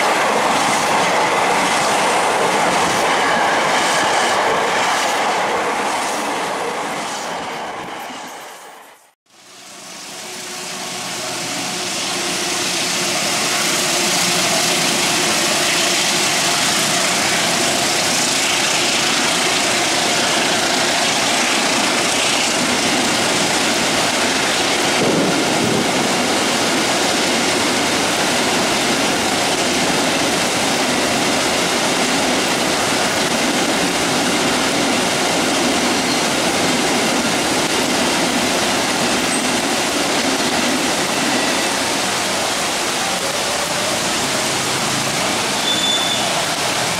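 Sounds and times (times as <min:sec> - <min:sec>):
freight train rolling past: 0:00.0 - 0:46.9
heavy rain hissing: 0:09.3 - 0:46.9.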